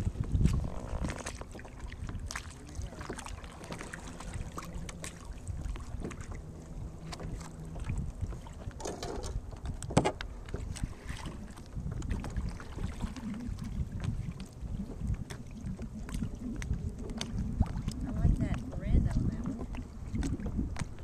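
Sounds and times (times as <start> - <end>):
paddle splashes and drips: 0.0 - 21.0
wind rumble on microphone: 0.0 - 21.0
paddle knocks: 8.3 - 11.4.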